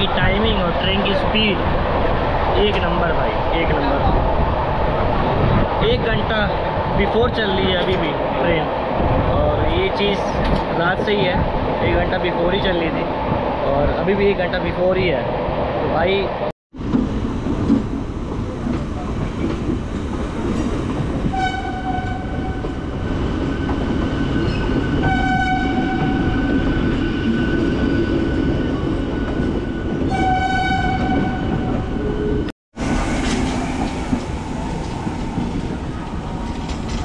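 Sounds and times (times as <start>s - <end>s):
train rumbling over rails: 0.0s - 37.0s
train horn: 21.3s - 22.6s, 25.0s - 26.2s, 30.1s - 31.6s.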